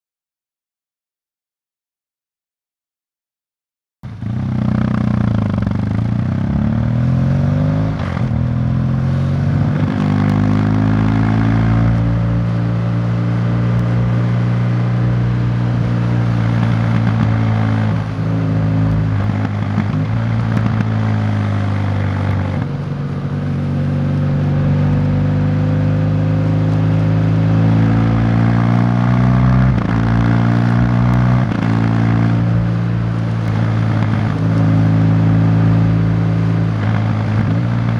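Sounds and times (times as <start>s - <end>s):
vehicle engine changing gears: 4.1s - 37.9s.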